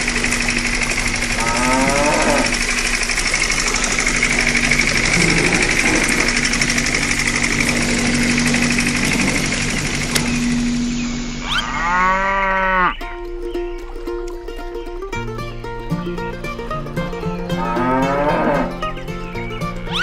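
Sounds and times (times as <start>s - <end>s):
rhythmic machine noise: 0.0s - 20.0s
cow mooing: 1.3s - 2.7s, 4.9s - 6.4s, 11.4s - 13.0s, 17.5s - 18.9s
plucked-string music: 12.2s - 20.0s.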